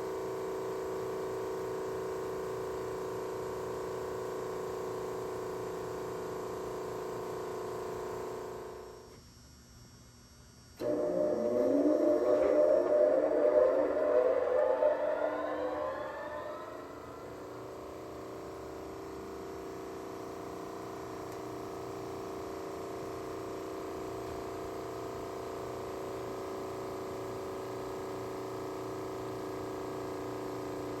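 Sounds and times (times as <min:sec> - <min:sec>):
disc sander motor humming: 0:10.8 - 0:18.0.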